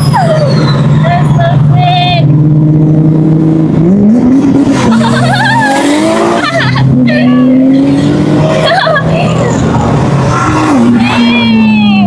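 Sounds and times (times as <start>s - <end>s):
tire squeal: 0.0s - 1.9s, 4.7s - 11.9s
engine revving: 0.0s - 11.7s
car engines running: 0.0s - 12.0s
people shouting: 10.4s - 12.0s.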